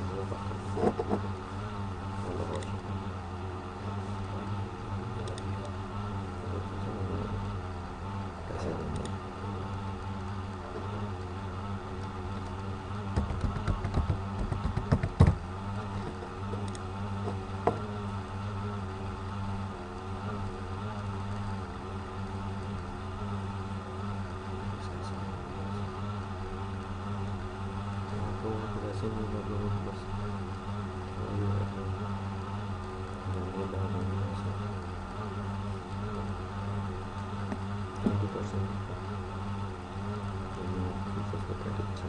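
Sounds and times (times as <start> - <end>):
low mechanical hum: 0.0 - 42.0
knocks and clicks: 13.1 - 15.4.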